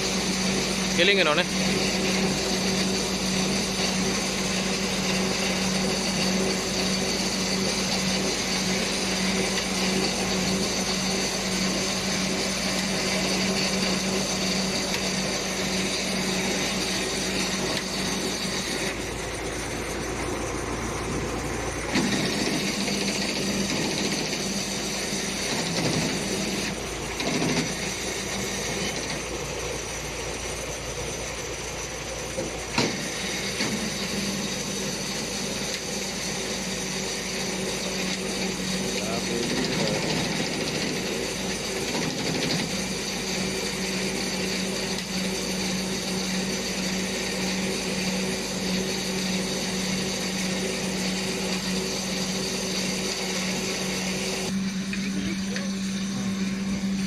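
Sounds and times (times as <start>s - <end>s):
heavy machinery engine running: 0.0s - 57.0s.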